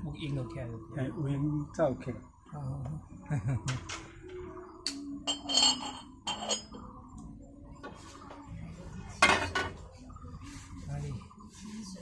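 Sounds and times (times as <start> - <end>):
tableware clinking: 4.9 - 6.9
tableware clattering: 5.2 - 6.9, 9.2 - 9.8.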